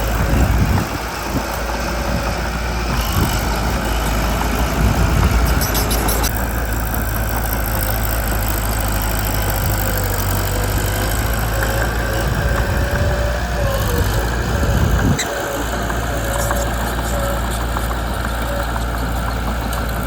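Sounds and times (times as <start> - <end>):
bulldozer diesel engine running: 0.0 - 20.0.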